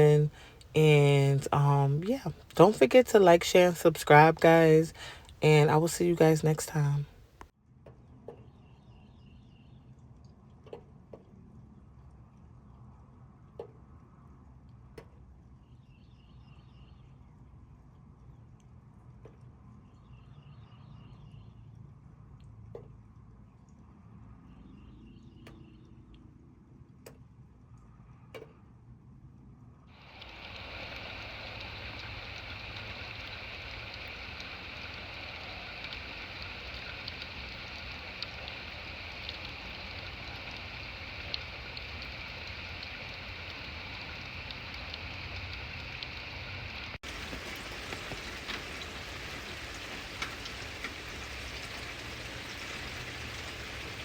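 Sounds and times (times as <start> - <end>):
steady rain falling: 0.0 - 7.2, 29.9 - 54.0.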